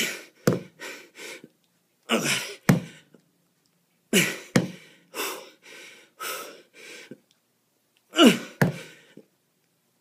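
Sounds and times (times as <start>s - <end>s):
man breathing hard: 0.0s - 1.5s, 4.1s - 7.2s, 8.2s - 9.3s
man grunting: 2.1s - 2.6s, 8.2s - 8.8s.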